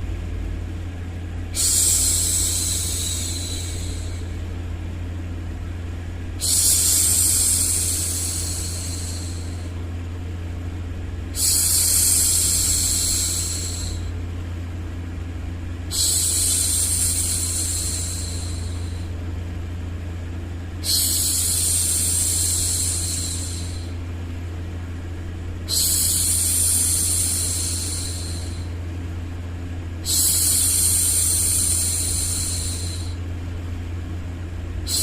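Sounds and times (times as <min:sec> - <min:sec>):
woman shushing: 0:01.6 - 0:04.3, 0:06.4 - 0:09.7, 0:11.4 - 0:14.1, 0:20.8 - 0:23.9, 0:25.7 - 0:28.7.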